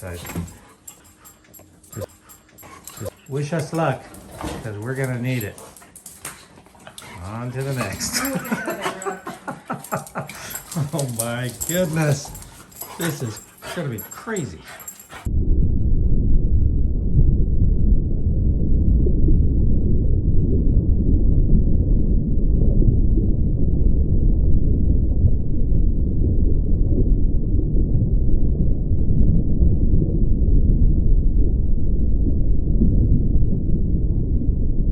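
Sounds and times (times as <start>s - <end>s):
low rumble: 15.3s - 34.9s.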